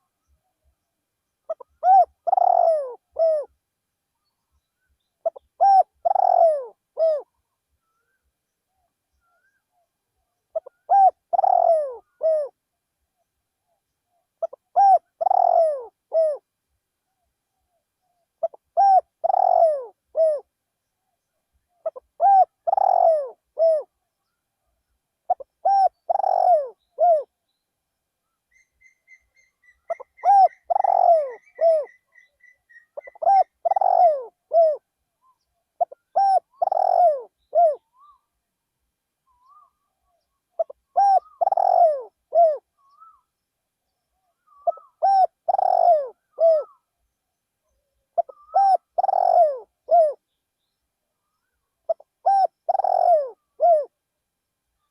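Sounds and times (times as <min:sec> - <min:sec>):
faint high bird chirps: 0:00.0 - 0:16.4, 0:17.1 - 0:38.4, 0:39.2 - 0:53.9
dove cooing: 0:01.5 - 0:03.6, 0:05.2 - 0:07.3, 0:10.5 - 0:12.6, 0:14.4 - 0:16.4, 0:18.4 - 0:20.5, 0:21.8 - 0:24.0, 0:25.3 - 0:27.3, 0:28.5 - 0:34.8, 0:35.4 - 0:38.2, 0:39.3 - 0:43.3, 0:44.3 - 0:46.9, 0:48.2 - 0:50.2, 0:51.4 - 0:54.0.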